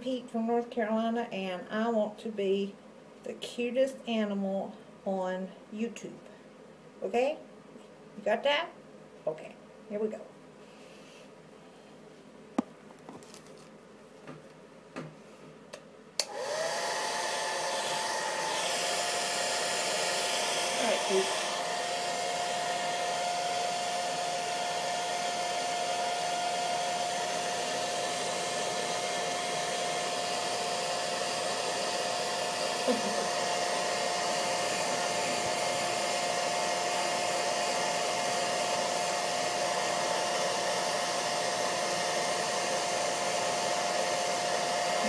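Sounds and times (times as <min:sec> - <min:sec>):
hair dryer blowing: 0:16.2 - 0:45.0.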